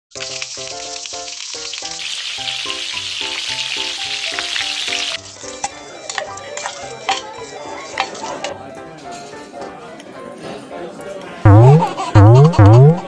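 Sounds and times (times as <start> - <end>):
food sizzling in frying: 0.1 - 8.1
melodic background music: 2.8 - 10.4, 11.5 - 13.0.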